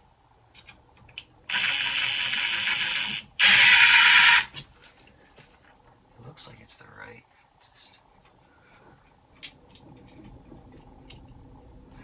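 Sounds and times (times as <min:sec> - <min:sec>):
cordless drill driving a screw: 0:01.4 - 0:04.6.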